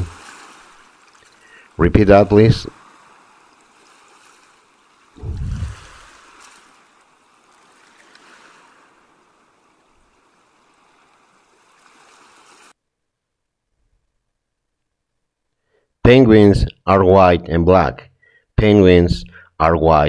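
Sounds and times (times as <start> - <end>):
sea water washing: 0.0 - 12.8.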